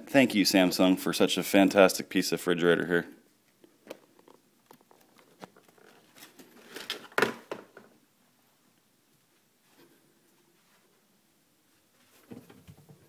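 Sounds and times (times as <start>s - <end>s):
rustling: 3.4s - 8.0s.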